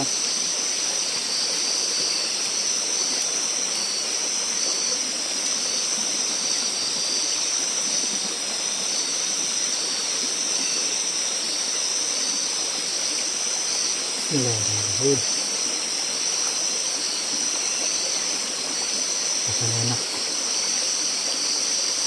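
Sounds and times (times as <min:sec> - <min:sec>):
chorus of night insects: 0:00.0 - 0:22.0
insect short repeated chirps: 0:13.1 - 0:22.0.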